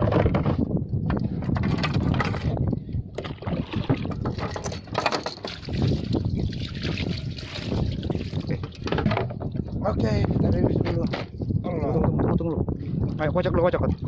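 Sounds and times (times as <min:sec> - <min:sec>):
knocks and clatter on deck: 0:00.0 - 0:00.7, 0:04.1 - 0:05.6, 0:08.5 - 0:09.5
wind buffeting microphone: 0:00.0 - 0:14.0
water splashing against boat: 0:03.1 - 0:10.0.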